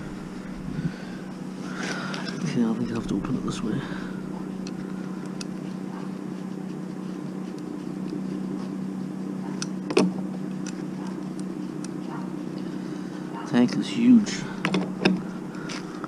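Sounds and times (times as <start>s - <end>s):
vehicle engine idling: 0.0s - 7.0s.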